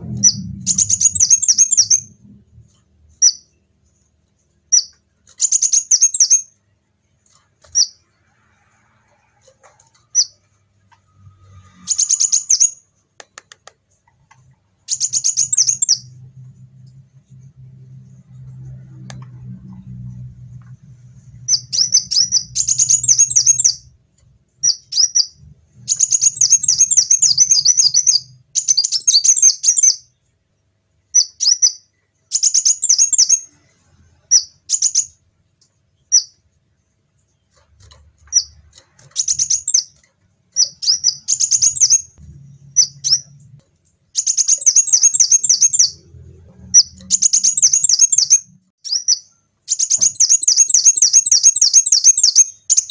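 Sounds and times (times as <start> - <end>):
bird twittering: 0.2 - 2.2, 14.9 - 16.1, 21.5 - 23.8, 24.6 - 30.0, 39.2 - 39.9, 40.6 - 43.4, 44.2 - 46.0, 46.8 - 52.9.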